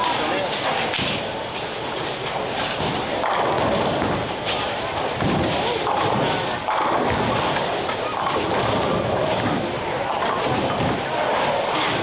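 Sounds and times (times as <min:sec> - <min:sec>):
bowling alley noise: 0:00.0 - 0:12.0
bowling balls thudding on lane: 0:02.8 - 0:12.0.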